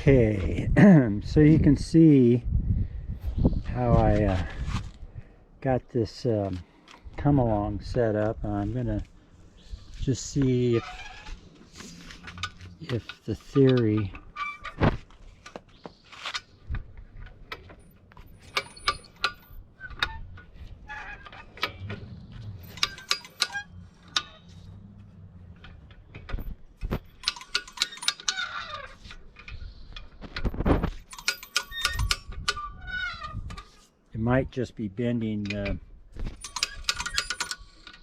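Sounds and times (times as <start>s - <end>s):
ratchet puller clicking: 21.4s - 24.7s, 27.1s - 29.6s, 31.0s - 32.6s, 36.4s - 38.0s.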